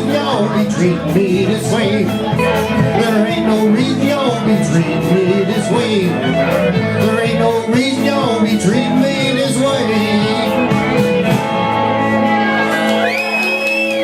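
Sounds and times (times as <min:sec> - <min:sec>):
country band playing: 0:00.0 - 0:14.0
guitar: 0:00.0 - 0:14.0.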